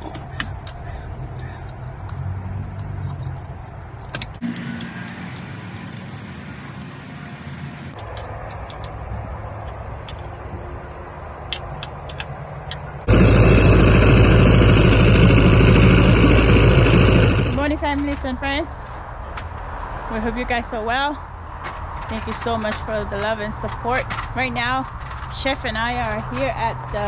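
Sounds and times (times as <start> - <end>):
engine running: 1.8 - 9.0, 12.7 - 18.4.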